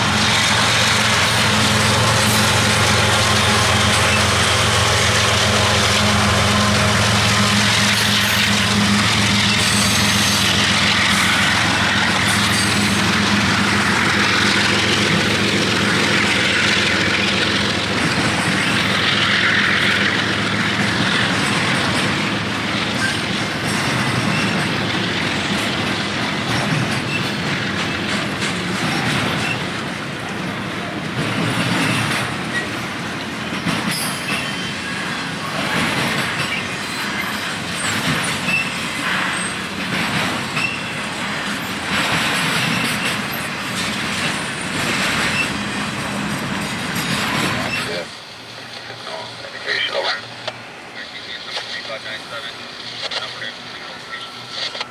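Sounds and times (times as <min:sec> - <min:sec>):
diesel locomotive engine hum: 0:00.0 - 0:54.9
freight cars rumbling on rails: 0:00.0 - 0:54.9.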